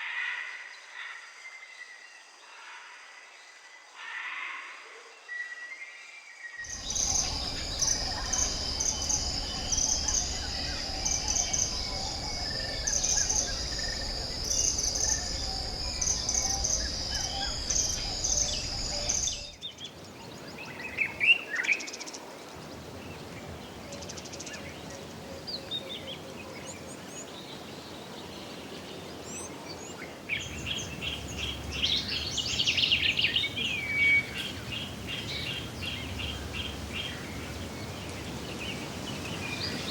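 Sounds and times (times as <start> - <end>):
bird calls: 6.7 - 19.6
birds chattering: 6.7 - 19.6
high insect drone: 6.7 - 19.6, 30.5 - 33.6.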